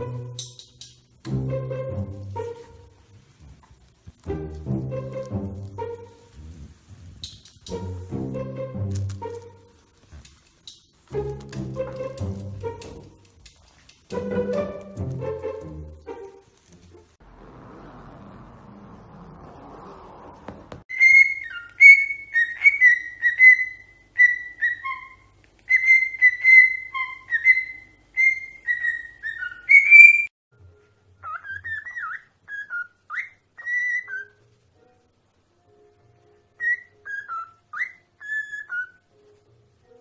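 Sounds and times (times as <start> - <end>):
parrot whistling: 20.9 - 30.3, 31.2 - 34.4, 36.6 - 39.1.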